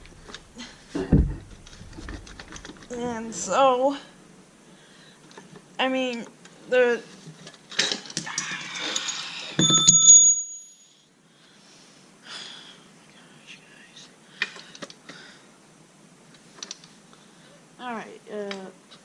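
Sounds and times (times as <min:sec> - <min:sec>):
scraping and handling: 0:00.0 - 0:03.5
metallic clank ringing: 0:09.6 - 0:10.8.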